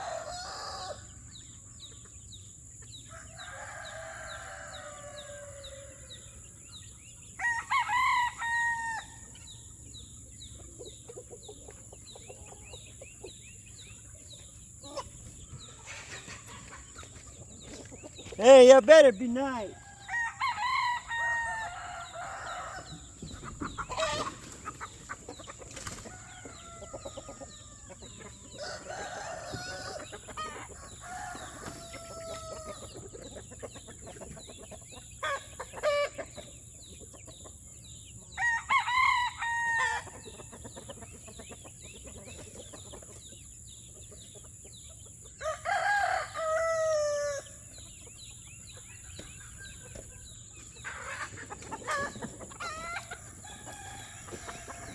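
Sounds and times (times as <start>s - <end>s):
roosters crowing: 0.0s - 2.0s, 2.9s - 9.6s, 14.8s - 34.2s, 35.2s - 36.6s, 37.9s - 41.3s, 45.3s - 54.9s
chickens clucking quietly: 0.0s - 54.9s.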